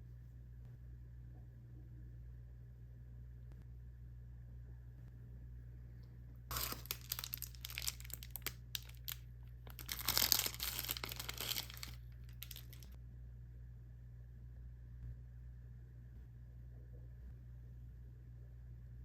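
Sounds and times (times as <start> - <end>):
plastic packaging crinkling: 6.5 - 12.9.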